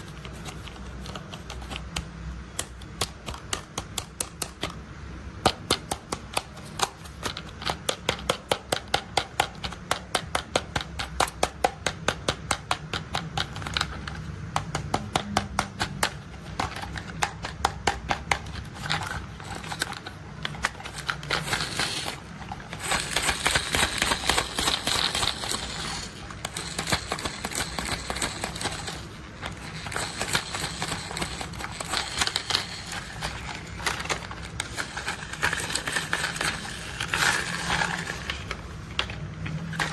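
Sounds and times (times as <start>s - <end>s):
rapid plastic clicking: 0.0s - 39.9s.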